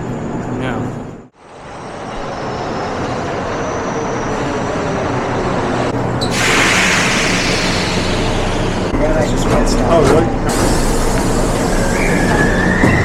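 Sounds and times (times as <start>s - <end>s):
subway train rumble: 0.0s - 13.0s
loud hiss: 6.3s - 8.9s.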